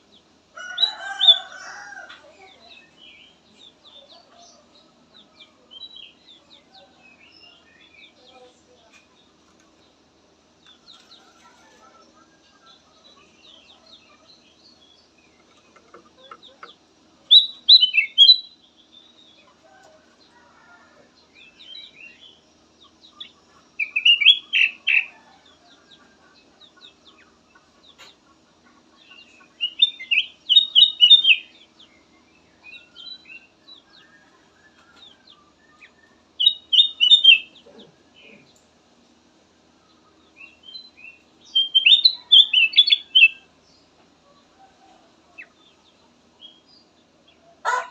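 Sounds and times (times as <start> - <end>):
bulbul singing: 12.7 - 19.6, 21.3 - 25.2, 29.0 - 38.6, 40.2 - 43.9.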